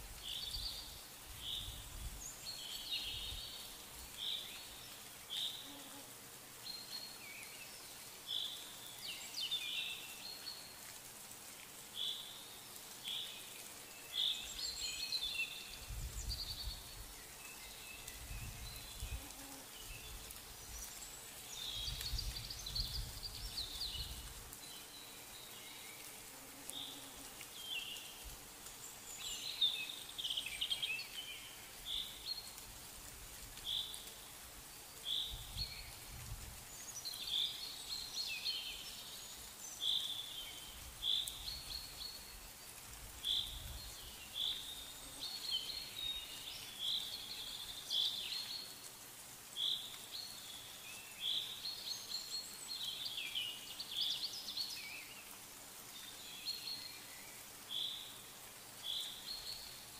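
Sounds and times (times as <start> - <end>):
small birds chirping: 11.7 - 32.9, 33.6 - 59.9.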